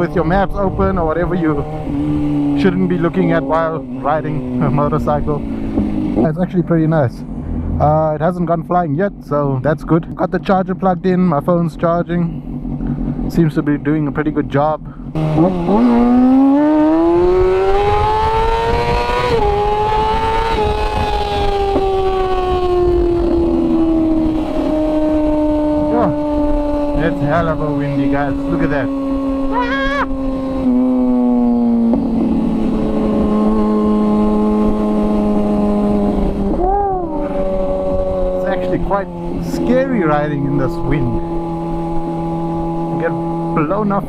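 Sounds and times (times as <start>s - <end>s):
wind rumble on microphone: 0.0s - 6.4s, 15.1s - 43.6s
motorcycle engine accelerating: 0.0s - 8.6s, 10.2s - 44.0s.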